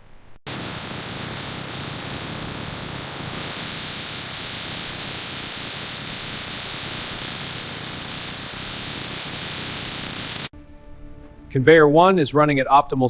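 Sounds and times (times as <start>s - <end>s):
machinery room hiss: 0.5s - 10.5s.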